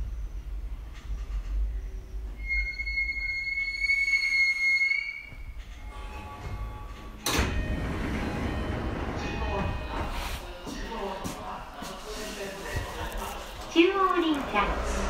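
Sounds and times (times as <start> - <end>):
electric train rumbling: 0.0 - 15.0
train brakes squealing: 1.1 - 6.8.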